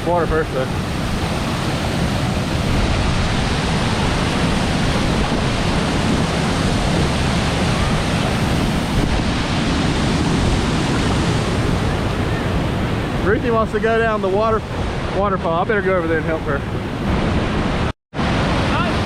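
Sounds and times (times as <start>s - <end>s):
rushing stream water: 0.0s - 19.0s.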